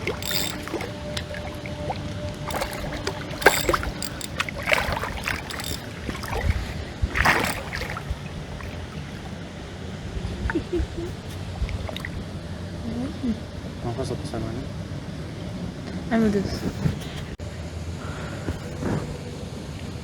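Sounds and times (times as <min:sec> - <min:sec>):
water splashes: 0:00.0 - 0:10.1, 0:11.4 - 0:12.4.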